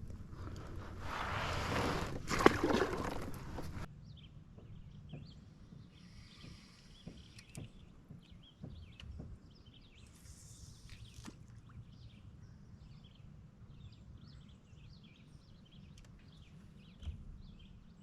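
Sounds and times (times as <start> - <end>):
small birds chirping: 4.0 - 18.0.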